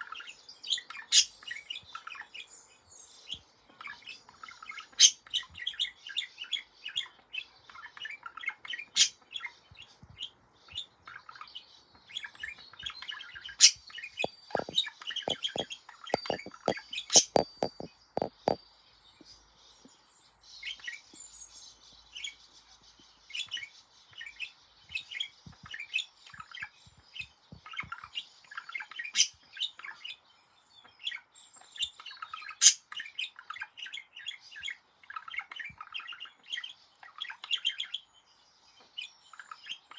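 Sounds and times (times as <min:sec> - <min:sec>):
budgerigar warbling: 0:13.6 - 0:15.6, 0:16.2 - 0:18.6
sharp clicks: 0:13.6 - 0:15.6, 0:16.2 - 0:18.6.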